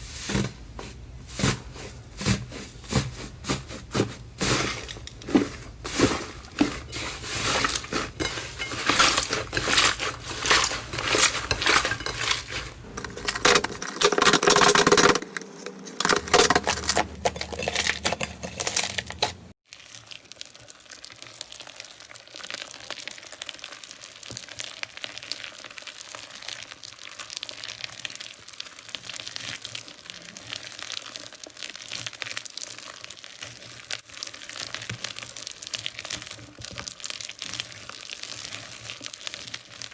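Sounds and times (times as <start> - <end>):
slime crackling and popping: 18.8 - 39.9.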